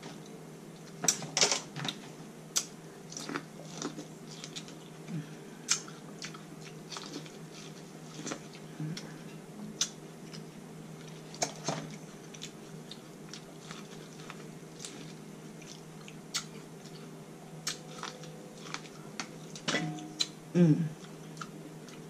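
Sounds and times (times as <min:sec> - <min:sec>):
faint steady hum: 0:00.0 - 0:22.0
person chewing corn on the cob: 0:02.6 - 0:05.0, 0:05.6 - 0:08.7, 0:12.1 - 0:19.6.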